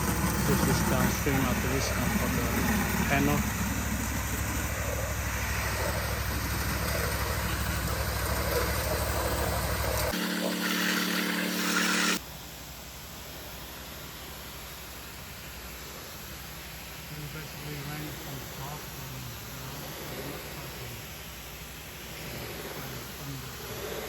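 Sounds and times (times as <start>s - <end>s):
pressure washer engine running: 0.0s - 12.2s
water spraying hiss: 0.0s - 24.0s.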